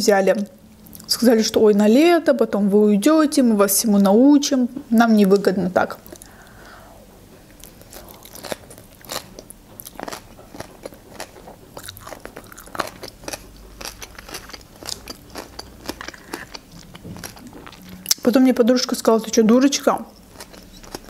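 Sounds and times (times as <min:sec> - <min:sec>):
wet crunchy chewing: 0:07.5 - 0:18.3, 0:20.0 - 0:21.0.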